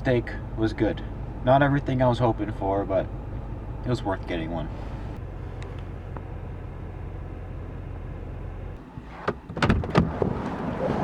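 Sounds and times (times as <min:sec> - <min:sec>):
vehicle idling hum: 0:00.0 - 0:11.0
sharp clunks and clicks: 0:09.0 - 0:10.5.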